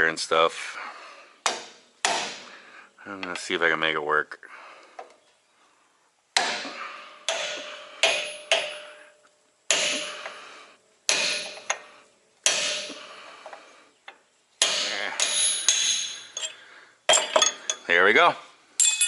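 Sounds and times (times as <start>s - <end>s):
hammer striking metal: 1.5s - 2.5s, 6.4s - 9.1s, 9.7s - 10.4s, 11.1s - 11.8s, 12.4s - 13.1s, 14.6s - 16.5s.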